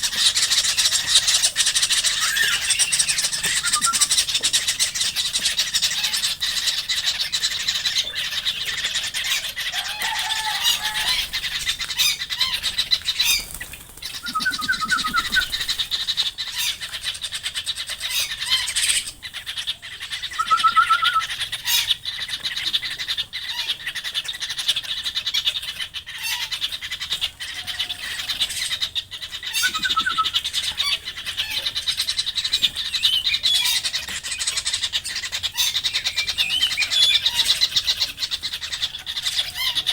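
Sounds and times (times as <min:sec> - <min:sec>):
short bird trills: 0:00.0 - 0:04.9, 0:14.2 - 0:15.8, 0:29.6 - 0:30.8
birds chattering: 0:00.0 - 0:39.9.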